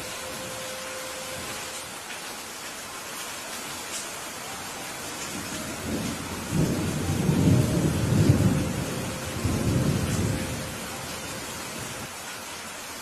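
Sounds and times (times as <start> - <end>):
steady rain: 0.0 - 13.0
thunder rumbling: 5.2 - 12.1.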